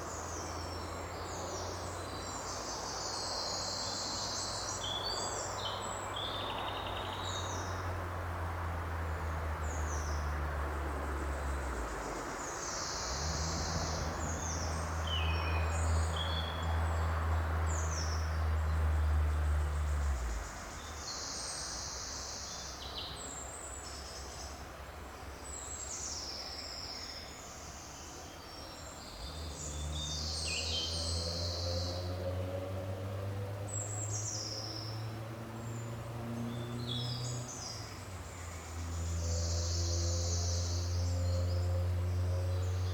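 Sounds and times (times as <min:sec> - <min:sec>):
small birds chirping: 0:11.2 - 0:32.4, 0:33.6 - 0:42.9.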